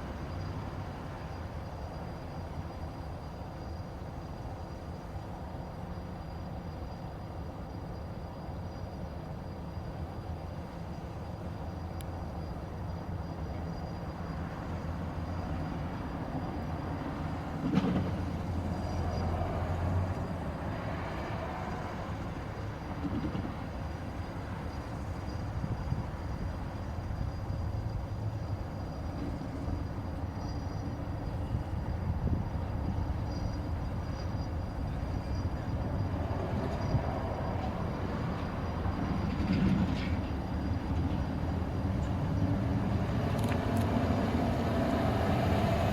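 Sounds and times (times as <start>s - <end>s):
diesel locomotive engine hum: 0.0s - 45.9s.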